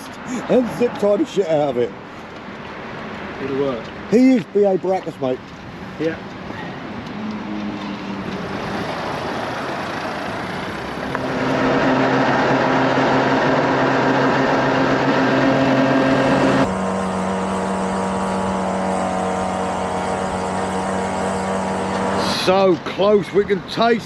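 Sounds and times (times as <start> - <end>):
road and wind rush: 0.0 - 24.0
moped engine running: 11.0 - 22.5.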